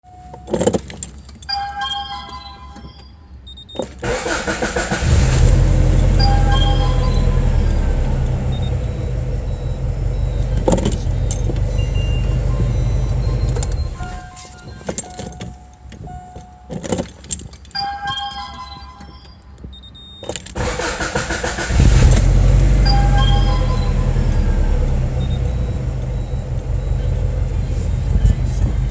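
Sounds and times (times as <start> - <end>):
keys jingling: 0.2 - 4.0, 10.4 - 12.7, 13.4 - 20.6
short beeps: 1.5 - 4.0, 5.6 - 16.8, 17.8 - 20.4, 22.2 - 28.6
engine cranking: 3.8 - 15.6, 20.2 - 28.9
car engine running: 4.0 - 14.3, 20.6 - 28.9
clicks: 5.4 - 28.7.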